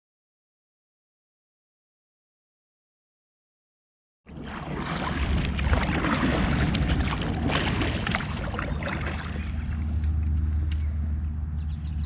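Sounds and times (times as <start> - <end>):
water splashing against kayak: 4.3 - 10.8.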